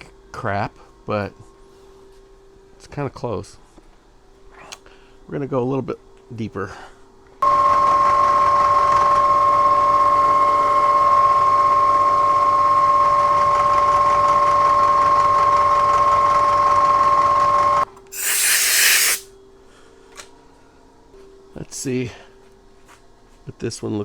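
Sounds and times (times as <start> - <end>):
milling machine cutting steel: 18.2 - 19.2
short hiss: 18.2 - 19.3.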